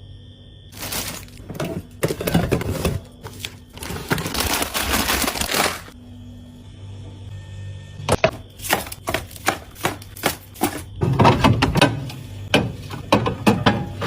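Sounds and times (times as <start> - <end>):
plastic packaging crinkling: 0.7 - 6.0
containers clattering: 0.8 - 5.9.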